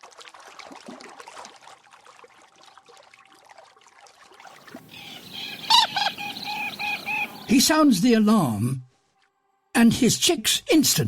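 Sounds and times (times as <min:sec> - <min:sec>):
water trickling and splashing: 0:00.0 - 0:07.7.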